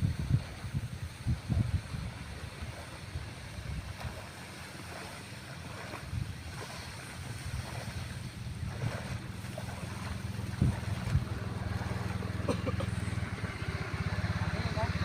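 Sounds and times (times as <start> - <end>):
wind noise on microphone: 0.0 - 4.3, 4.9 - 12.4
small engine running: 8.7 - 15.0.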